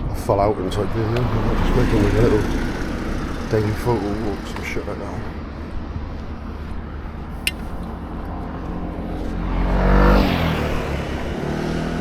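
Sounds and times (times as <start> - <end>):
car passing by: 0.7 - 4.7, 7.6 - 12.0.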